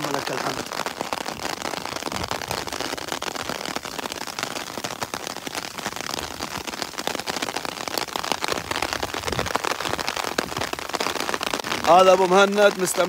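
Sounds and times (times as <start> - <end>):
rain on wet road: 0.0 - 13.0
rain pattering on an umbrella: 0.0 - 13.0.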